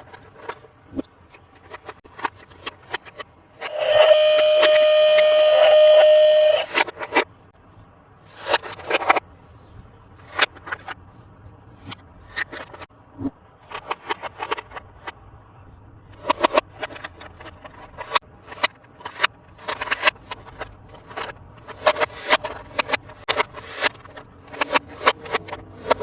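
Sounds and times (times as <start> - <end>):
plastic toy parts handled: 0.0 - 3.7, 8.2 - 12.9, 13.6 - 15.2, 16.1 - 26.0
electronic toy tone: 3.7 - 6.9.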